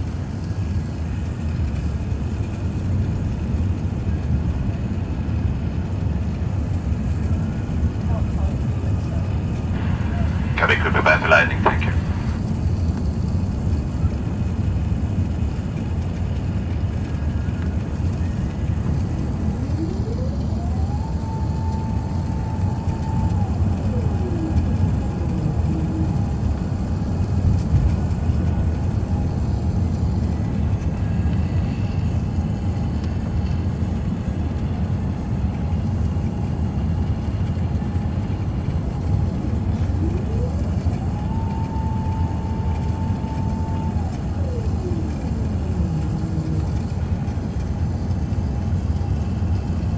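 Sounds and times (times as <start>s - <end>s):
aircraft cabin engine rumble: 0.0s - 49.9s
rising and falling whine: 9.4s - 12.4s, 16.9s - 33.2s, 38.1s - 49.4s.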